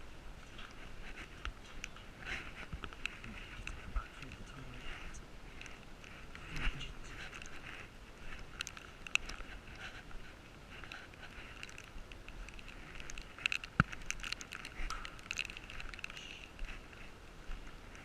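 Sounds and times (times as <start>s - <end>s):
small clicks: 10.8s - 16.8s.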